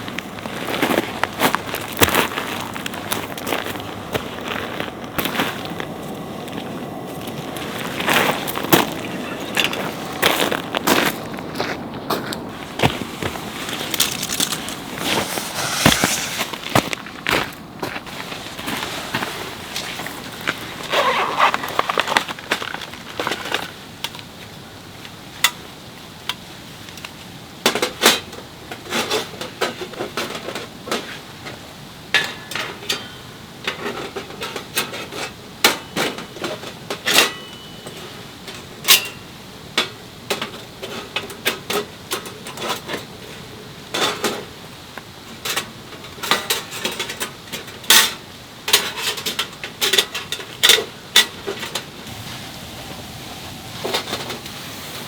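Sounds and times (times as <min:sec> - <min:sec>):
steady background hiss: 0:00.0 - 0:55.0
cookware and utensils clinking: 0:32.2 - 0:43.0.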